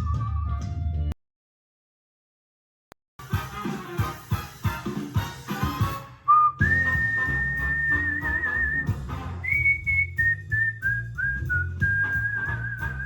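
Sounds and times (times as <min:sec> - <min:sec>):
person whistling a tune: 0:00.0 - 0:00.7, 0:06.3 - 0:13.0
instrumental backing music: 0:03.2 - 0:10.2, 0:11.1 - 0:13.0.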